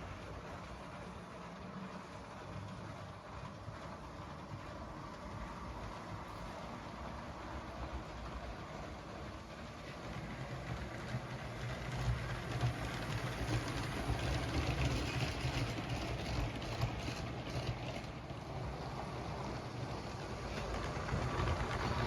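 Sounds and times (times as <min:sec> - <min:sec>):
wheels rattling over plastic rails: 0:12.0 - 0:19.2.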